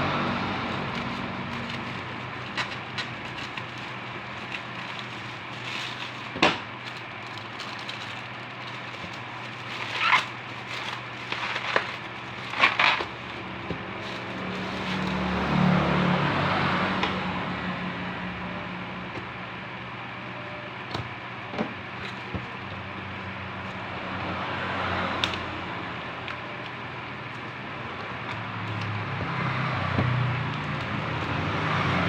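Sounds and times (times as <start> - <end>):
steady background hum: 0.0 - 32.0
packaging crackles and clicks: 0.1 - 15.6, 24.9 - 31.6.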